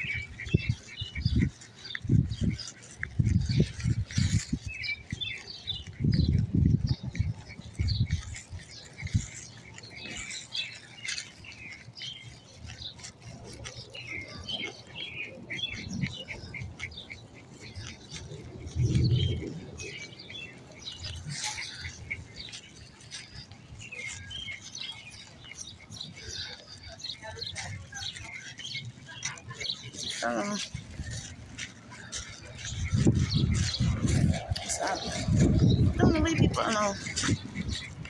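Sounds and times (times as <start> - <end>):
low rumbles on microphone: 0.0 - 9.4, 18.2 - 21.2, 30.6 - 38.0
small birds chirping: 0.0 - 38.0.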